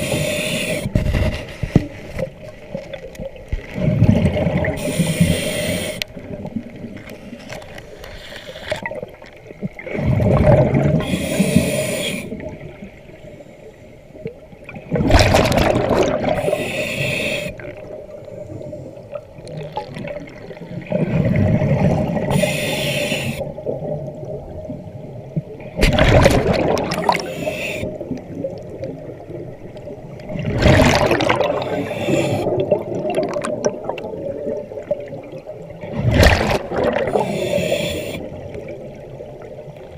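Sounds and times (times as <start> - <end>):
regulator inhale hiss: 0.0 - 1.8, 4.8 - 6.1, 7.3 - 8.8, 11.0 - 12.4, 16.4 - 17.6, 22.3 - 23.5, 27.1 - 28.1, 31.6 - 32.6, 37.1 - 38.4
exhaled bubbles gurgling: 0.0 - 7.6, 8.7 - 13.2, 14.2 - 39.9.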